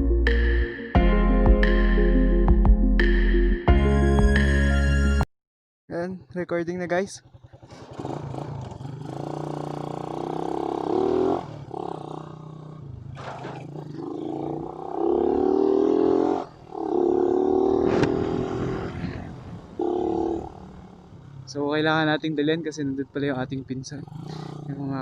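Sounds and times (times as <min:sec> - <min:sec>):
motorcycle engine accelerating: 0:07.0 - 0:25.0.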